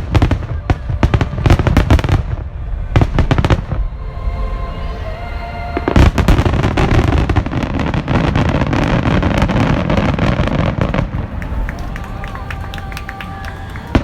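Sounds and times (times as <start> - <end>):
fireworks burst: 0.0 - 3.9.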